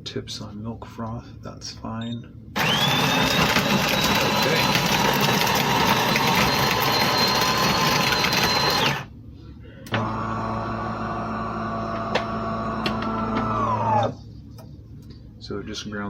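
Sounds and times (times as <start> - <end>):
motor hum: 2.5 - 9.1, 9.7 - 14.3
coffee grinder whirring: 2.6 - 9.1, 10.0 - 14.2.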